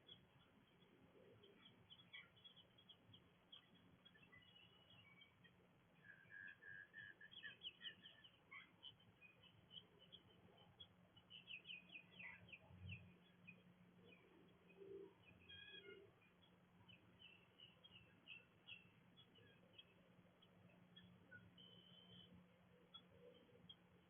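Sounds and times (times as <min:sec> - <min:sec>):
wild birds chirping: 0:00.0 - 0:24.0.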